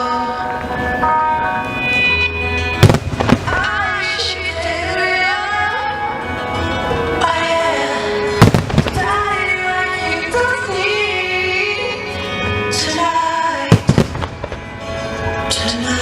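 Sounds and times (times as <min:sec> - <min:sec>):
music: 0:00.0 - 0:16.0
fireworks bangs: 0:02.8 - 0:04.0, 0:08.4 - 0:09.6, 0:13.7 - 0:14.8.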